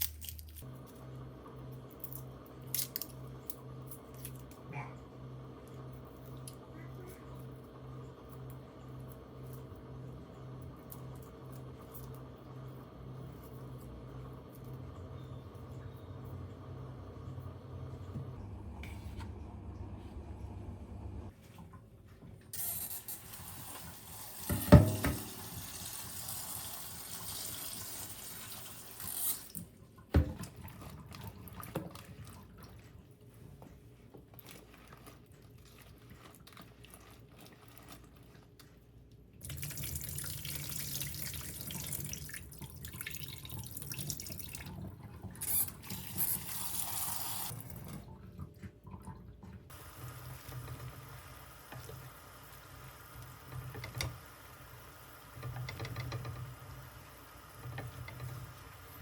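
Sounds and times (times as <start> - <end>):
tap running into sink: 24.4 - 25.6.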